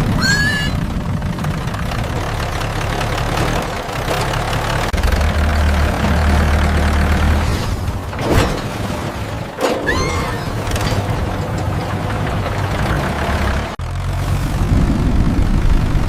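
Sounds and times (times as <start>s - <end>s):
small tractor engine running: 0.0s - 7.6s, 10.6s - 16.0s.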